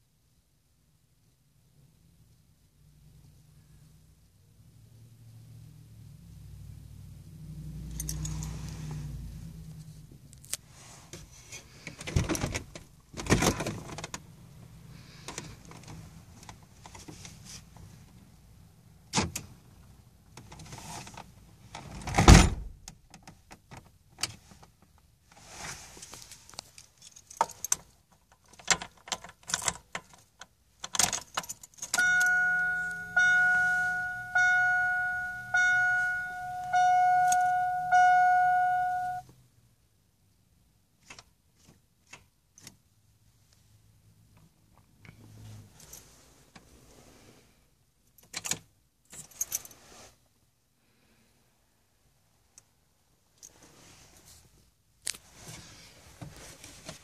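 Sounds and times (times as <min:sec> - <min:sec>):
car keys jangling: 0:07.9 - 0:08.8, 0:26.2 - 0:39.2
truck warning chime: 0:32.0 - 0:39.3.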